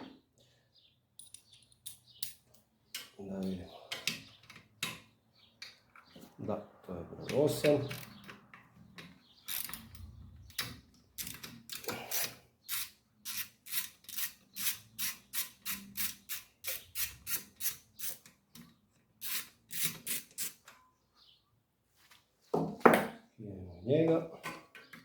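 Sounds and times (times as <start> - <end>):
ratchet wrench clicking: 9.5 - 10.0, 11.2 - 18.3, 19.2 - 20.6.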